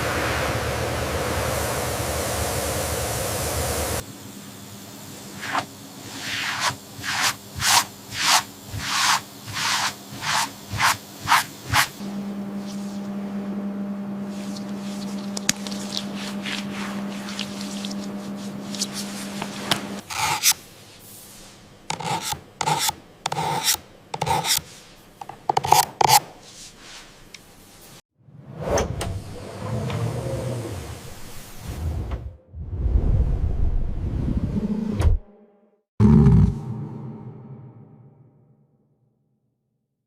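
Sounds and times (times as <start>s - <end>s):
low machine hum: 12.0s - 20.0s.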